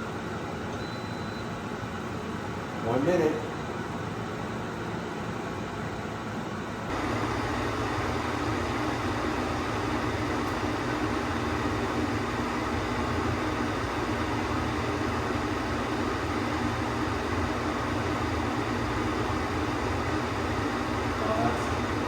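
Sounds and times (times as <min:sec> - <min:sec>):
steady rushing whir with hum: 0:06.9 - 0:22.0.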